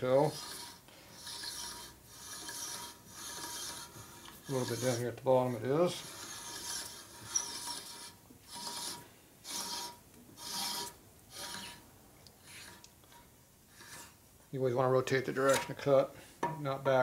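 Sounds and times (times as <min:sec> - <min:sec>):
hand reamer scraping metal: 0:00.0 - 0:14.2, 0:15.3 - 0:15.9
faint metal squeal: 0:05.9 - 0:11.8.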